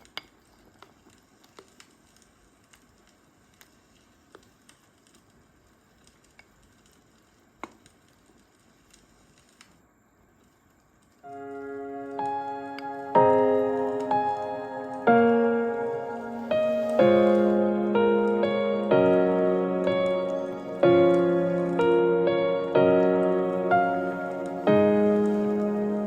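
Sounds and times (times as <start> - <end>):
light pops and crackles: 0.0 - 11.5
low hiss: 0.0 - 26.0
food sizzling: 11.3 - 26.0.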